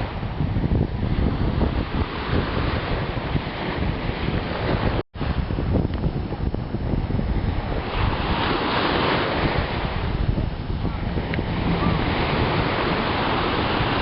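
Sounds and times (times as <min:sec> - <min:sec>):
water rushing: 0:00.0 - 0:14.0
wind buffeting microphone: 0:00.0 - 0:14.0.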